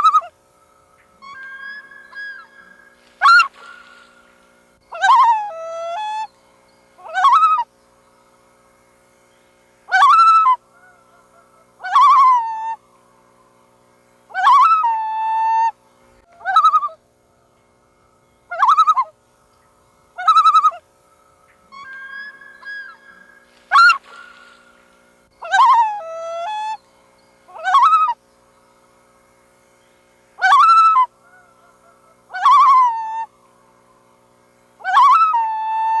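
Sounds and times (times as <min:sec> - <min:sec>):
loon calling: 0:00.0 - 0:00.4, 0:01.0 - 0:06.3, 0:07.0 - 0:07.7, 0:09.9 - 0:12.8, 0:14.3 - 0:17.5, 0:18.4 - 0:19.2, 0:20.1 - 0:20.9, 0:21.5 - 0:26.8, 0:27.5 - 0:28.2, 0:30.4 - 0:33.3, 0:34.8 - 0:36.0.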